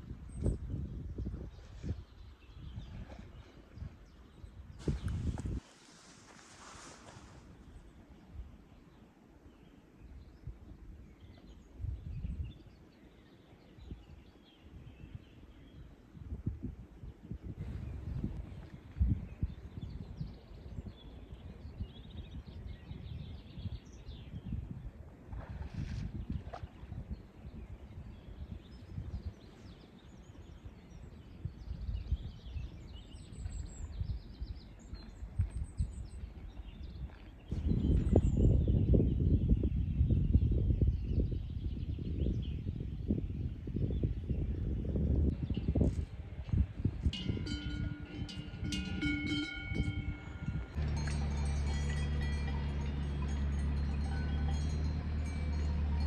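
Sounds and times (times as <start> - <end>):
low rumbling noise: 46.6 - 56.0
birds chirping: 47.1 - 56.0.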